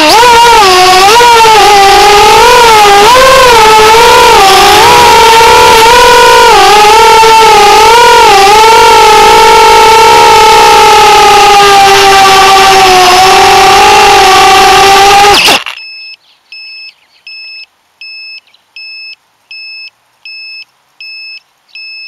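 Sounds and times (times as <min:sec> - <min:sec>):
drone motors whining: 0:00.0 - 0:16.1
drone buzzer beeping: 0:00.0 - 0:22.0.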